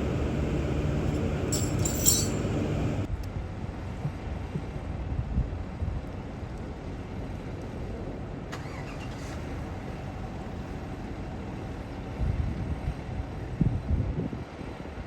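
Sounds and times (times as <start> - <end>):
road traffic engines: 0.0 - 3.1.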